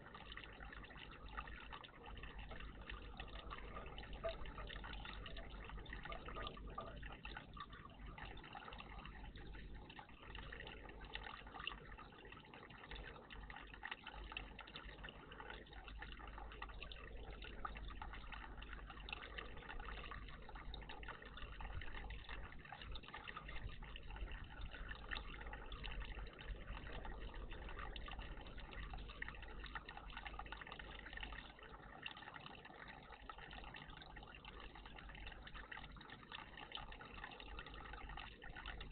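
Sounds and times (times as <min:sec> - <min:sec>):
bird bath water trickling: 0:00.0 - 0:38.9
small water drips: 0:00.0 - 0:38.9.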